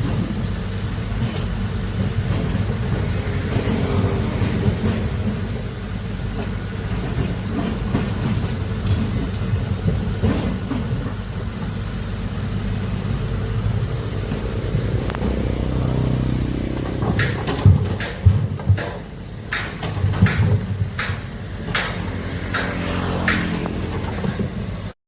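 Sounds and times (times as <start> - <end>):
excavator diesel engine rumbling: 0.0 - 25.0.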